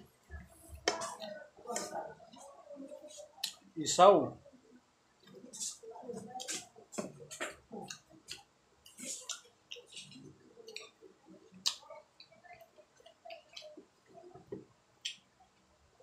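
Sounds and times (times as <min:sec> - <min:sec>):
wet chewing and lip-smacking: 0:07.8 - 0:14.2, 0:15.0 - 0:15.3.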